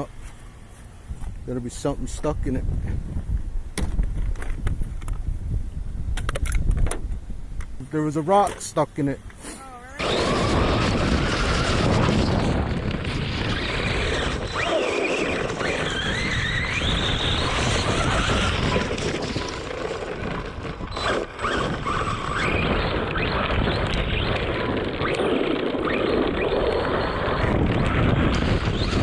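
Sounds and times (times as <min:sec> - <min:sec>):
electric motor whine: 0:10.0 - 0:29.0
rc truck rumbling over rough ground: 0:10.0 - 0:29.0.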